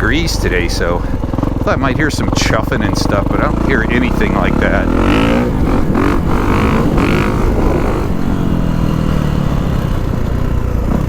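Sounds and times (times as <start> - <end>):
motorcycle engine putting: 0.0 - 11.0.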